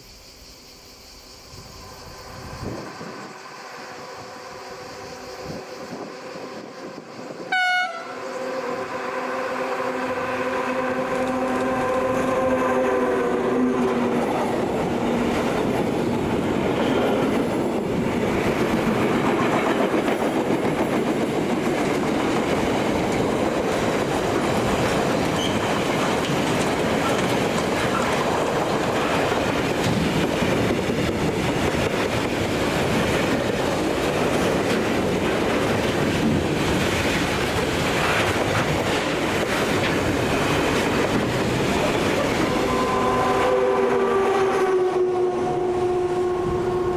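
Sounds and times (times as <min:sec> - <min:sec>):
train wheels rumbling on rails: 0:00.0 - 0:46.9
train horn: 0:03.7 - 0:14.2, 0:42.1 - 0:46.9.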